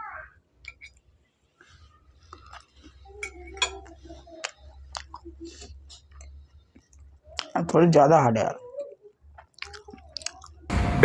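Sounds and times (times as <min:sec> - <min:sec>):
wet chewing mouth clicks: 0:02.2 - 0:03.1, 0:03.8 - 0:07.6, 0:09.3 - 0:10.6.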